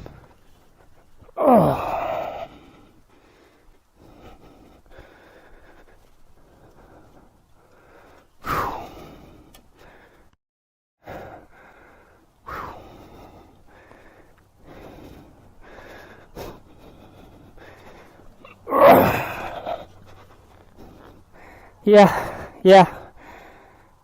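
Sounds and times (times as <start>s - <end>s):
person breathing hard and gasping: 0.0s - 10.4s, 11.0s - 24.0s.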